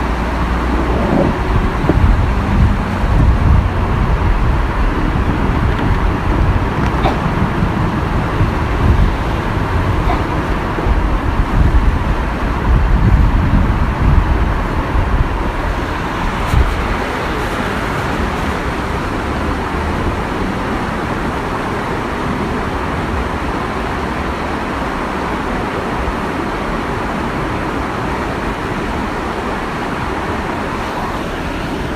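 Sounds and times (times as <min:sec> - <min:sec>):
low rumble: 0:00.0 - 0:20.2
small waterfall rushing: 0:00.0 - 0:31.9.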